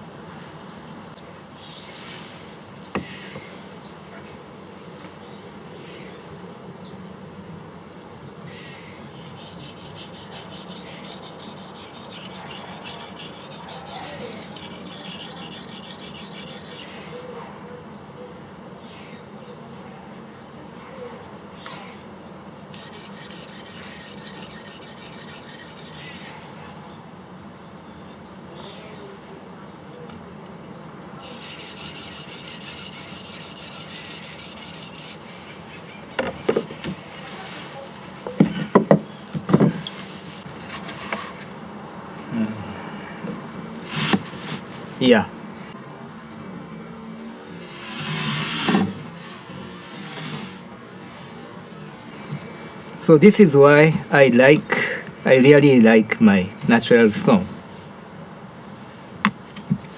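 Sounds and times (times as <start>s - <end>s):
knife scraping on whetstone: 9.2s - 17.0s, 22.3s - 26.4s, 31.2s - 35.3s, 43.8s - 44.6s, 47.7s - 49.0s, 49.8s - 50.7s.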